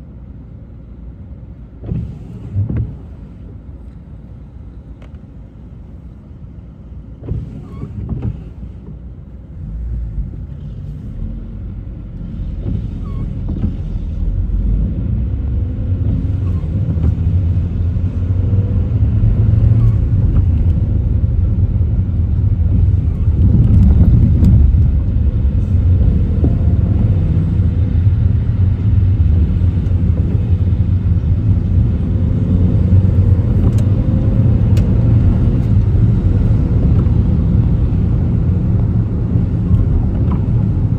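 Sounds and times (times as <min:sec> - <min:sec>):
car engine and tyre rumble: 0:00.0 - 0:40.9.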